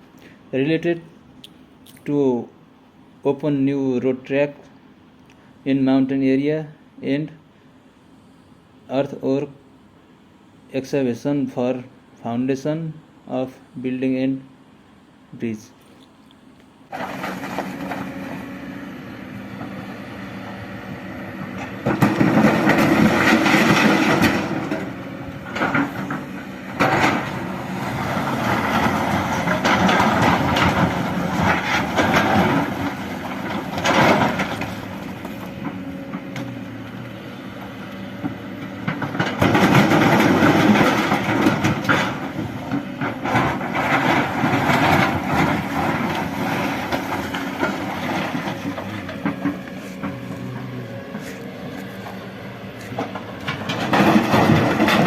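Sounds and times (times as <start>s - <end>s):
excavator diesel engine: 16.9s - 55.0s
machine clanking and knocking: 21.8s - 35.8s, 38.8s - 50.6s, 53.0s - 55.0s.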